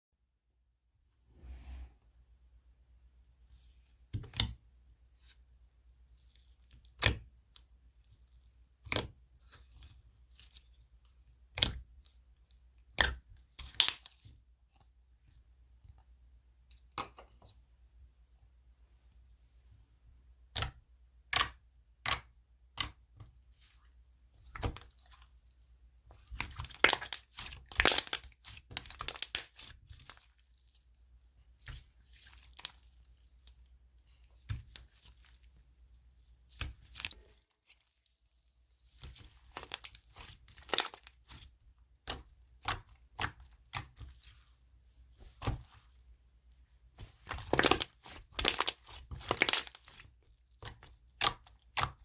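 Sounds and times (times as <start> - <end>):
slime crackling and snapping: 26.3 - 30.2, 39.5 - 41.4, 47.2 - 52.0.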